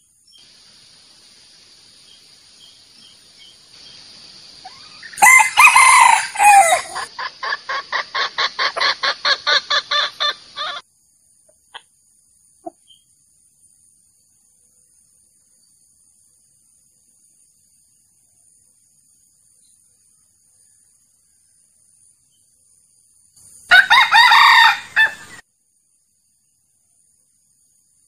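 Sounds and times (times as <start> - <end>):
rooster crowing: 4.7 - 7.1, 23.7 - 25.4.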